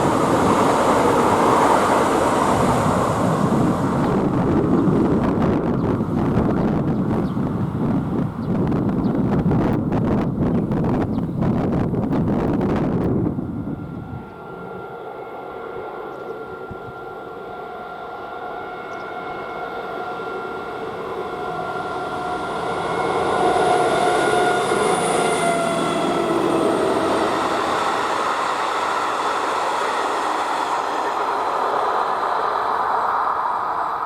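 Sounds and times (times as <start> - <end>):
train passing: 0.0 - 34.0
wheels rumbling on rail: 0.0 - 34.0
whining tones dropping in pitch: 13.0 - 31.3.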